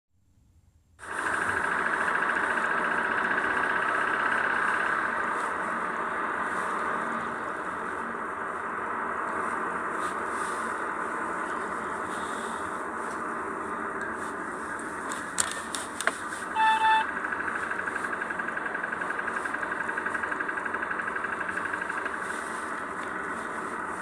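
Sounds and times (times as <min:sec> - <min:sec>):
engine ticking: 0:01.0 - 0:24.0
short beep: 0:16.5 - 0:17.1.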